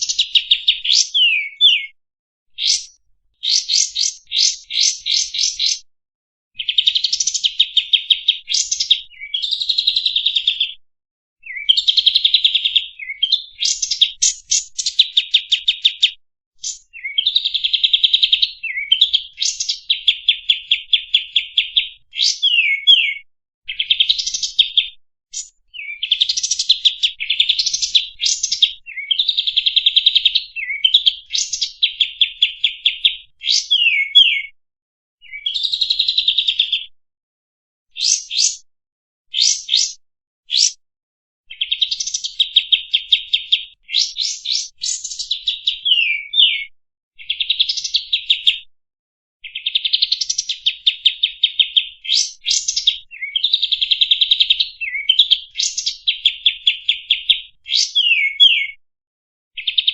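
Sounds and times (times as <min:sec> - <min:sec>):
bird singing high trills: 0:00.0 - 0:02.0, 0:02.6 - 0:05.8, 0:18.5 - 0:24.5, 0:33.5 - 0:34.5, 0:39.4 - 0:40.8, 0:43.9 - 0:46.7, 0:54.6 - 0:58.8.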